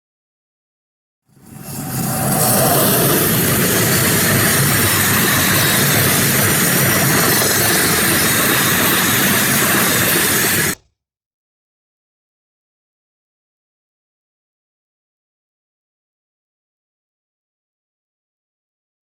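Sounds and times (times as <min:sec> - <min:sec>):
freight train passing: 0:01.3 - 0:10.8.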